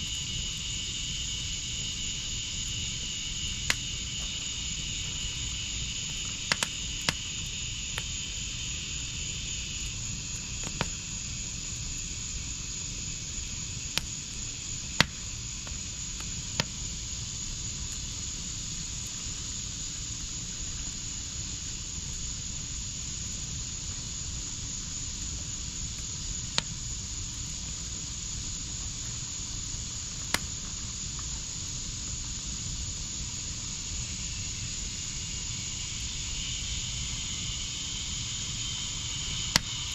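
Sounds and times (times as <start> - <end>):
fire pops and crackles: 0.0 - 35.9, 38.4 - 39.9
wood fire hissing: 0.0 - 39.9.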